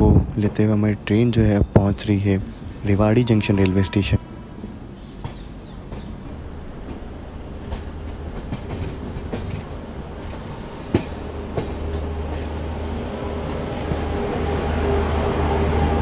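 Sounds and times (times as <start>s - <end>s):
train wheels clacking over rail joints: 5.1s - 12.6s.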